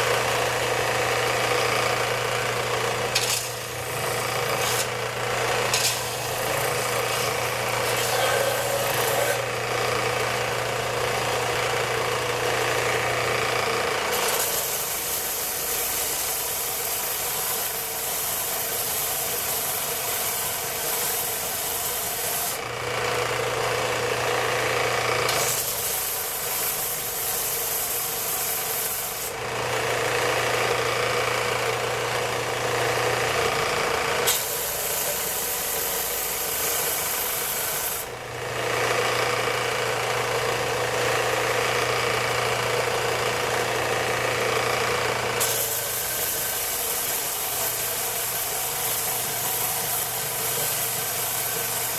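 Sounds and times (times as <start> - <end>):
electric tool motor hum: 0.0 - 51.9
harsh rasping of wood cutting: 1.5 - 11.0.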